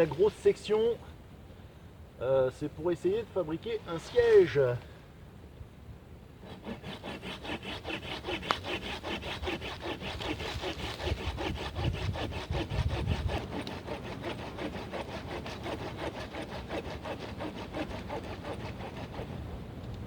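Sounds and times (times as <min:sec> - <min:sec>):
hand saw cutting log: 0:06.4 - 0:19.5.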